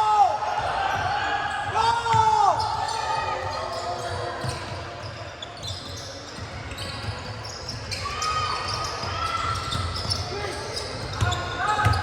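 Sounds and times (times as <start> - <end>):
voices echoing in gym: 0.0 - 12.0
sneakers squeaking: 0.6 - 12.0
basketball bouncing on court: 9.6 - 12.0.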